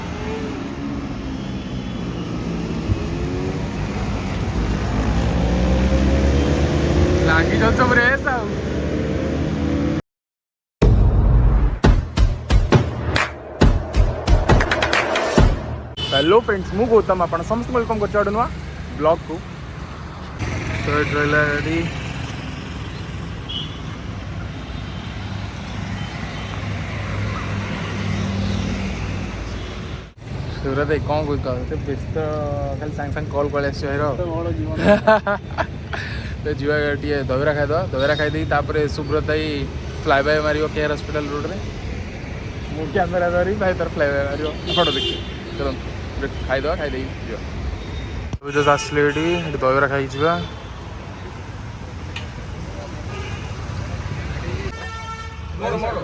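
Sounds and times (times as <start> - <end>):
motorcycle engines revving: 0.0 - 10.0, 16.8 - 24.4
road traffic noise: 0.0 - 10.0, 12.8 - 56.0
vehicle engines running: 16.5 - 44.5.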